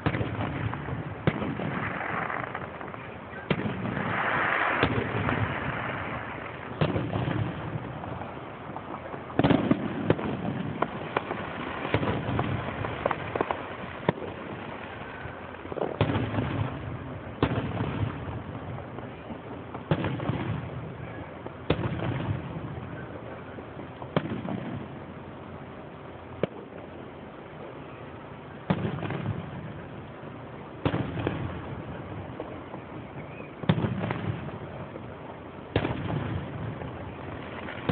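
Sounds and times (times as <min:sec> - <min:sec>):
fireworks bangs: 0:00.0 - 0:25.2, 0:27.6 - 0:37.9
fireworks rumbling and crackling: 0:00.0 - 0:37.9.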